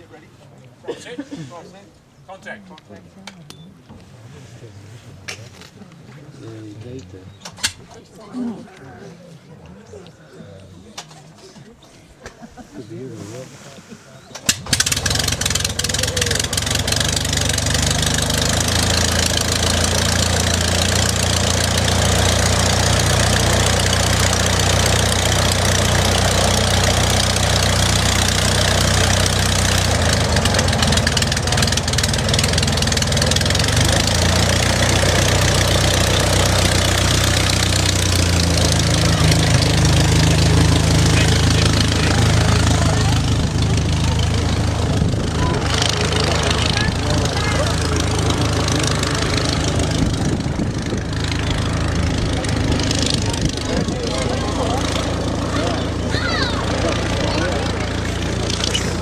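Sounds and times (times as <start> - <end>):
aircraft engine idling: 14.5 - 59.0.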